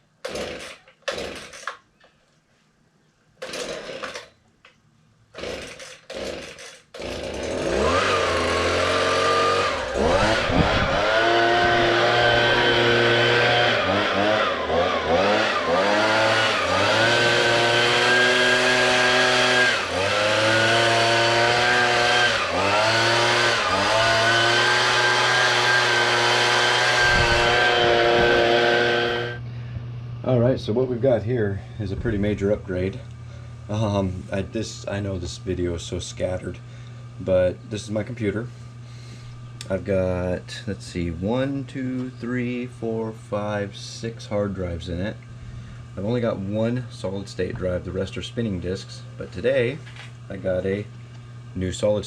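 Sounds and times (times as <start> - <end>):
chainsaw engine running: 0.2 - 1.8, 3.4 - 4.3, 5.4 - 29.4.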